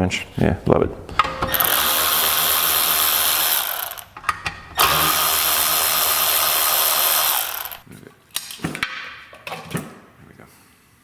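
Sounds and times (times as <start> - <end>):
power ratchet spinning nuts: 1.1 - 4.2, 4.8 - 7.8.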